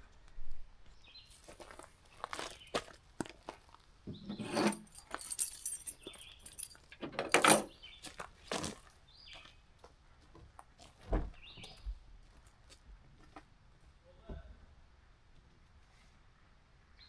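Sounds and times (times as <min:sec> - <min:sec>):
gear clinking and rattling: 0:04.2 - 0:07.8.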